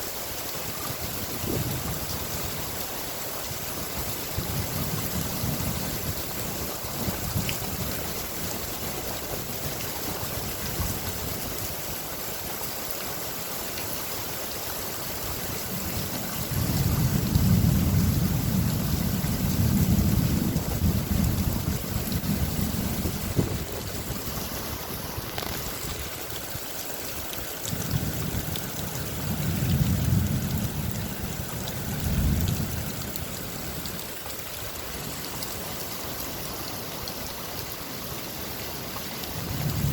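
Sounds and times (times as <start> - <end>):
steady rain: 0.0 - 39.9
deep rolls of thunder: 27.9 - 33.9.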